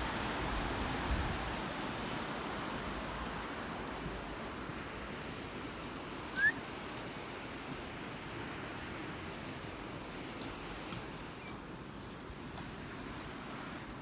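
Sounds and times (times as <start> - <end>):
rising bird whistle: 6.4 - 6.6.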